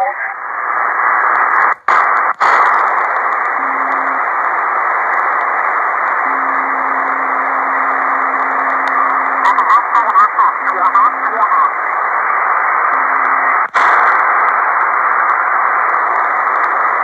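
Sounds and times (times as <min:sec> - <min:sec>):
radio static hiss: 0:00.0 - 0:17.0
low steady carrier tone: 0:03.2 - 0:13.7.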